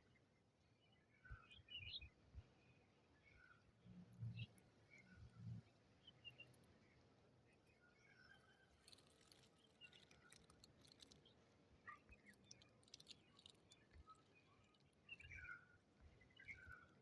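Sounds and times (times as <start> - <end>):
small clicks: 8.8 - 11.2, 12.2 - 14.2.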